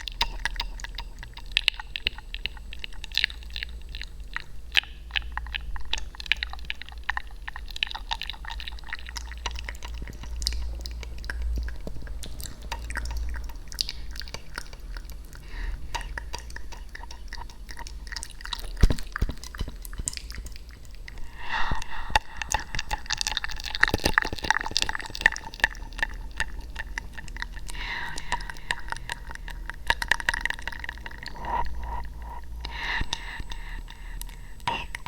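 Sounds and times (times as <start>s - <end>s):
wet mouth clicks and smacks: 0.0s - 35.0s
low hum: 9.4s - 35.0s.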